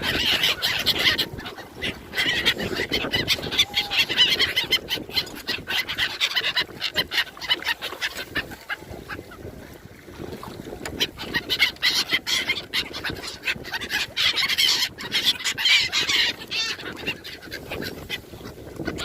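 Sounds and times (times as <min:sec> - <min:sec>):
flock of gulls calling: 0:00.0 - 0:09.8, 0:10.4 - 0:19.0.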